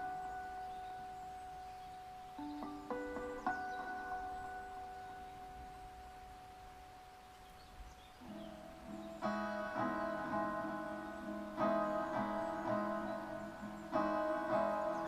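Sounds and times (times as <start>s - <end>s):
fingerstyle acoustic guitar: 8.2s - 15.0s.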